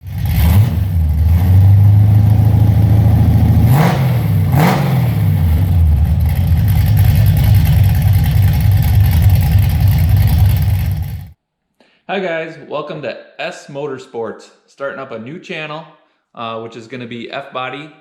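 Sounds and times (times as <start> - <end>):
car engine revving: 0.0 - 11.4.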